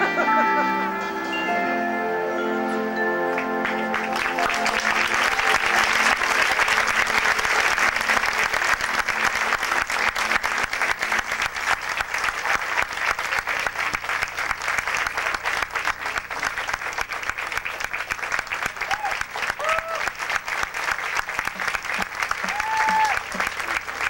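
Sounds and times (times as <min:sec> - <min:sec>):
marching band chord: 0:00.0 - 0:18.7
audience applauding: 0:03.3 - 0:24.0.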